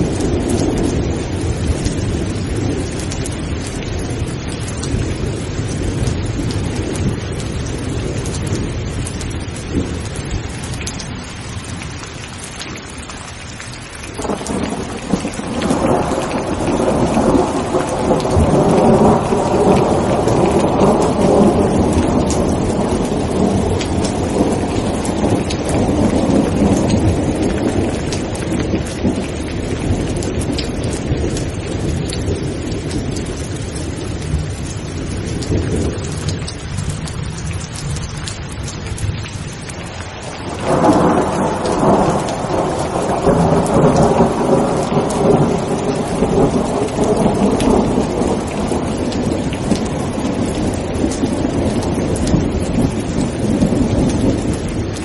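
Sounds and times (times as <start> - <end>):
rain falling: 0.0 - 55.0
thunder rolling: 14.2 - 55.0.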